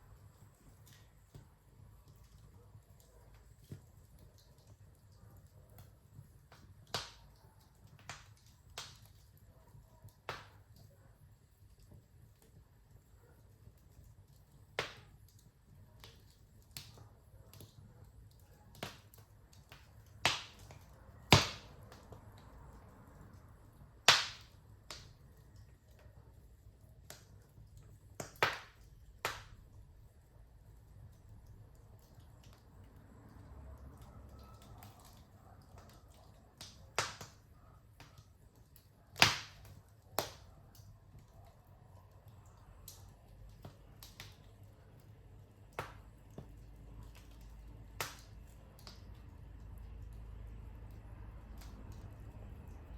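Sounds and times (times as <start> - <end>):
wood fire crackling and popping: 0.0 - 52.9
sharp fire pops: 6.5 - 9.2, 10.2 - 10.6, 14.8 - 15.3, 18.7 - 22.2, 24.0 - 25.2, 28.1 - 29.6, 36.6 - 37.4, 39.1 - 40.5, 47.9 - 49.1.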